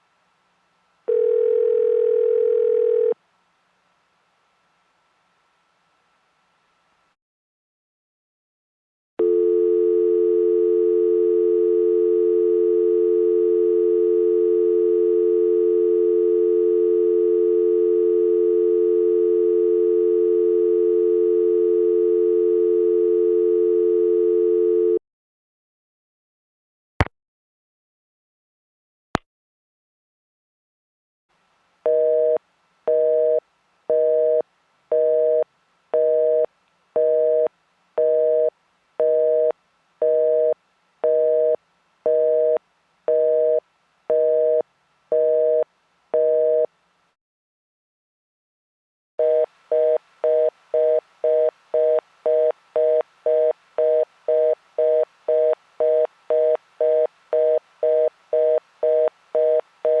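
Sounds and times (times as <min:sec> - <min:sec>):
telephone busy signal beeps: 0:09.2 - 0:25.0, 0:49.2 - 1:00.0
fast busy tone: 0:49.2 - 1:00.0.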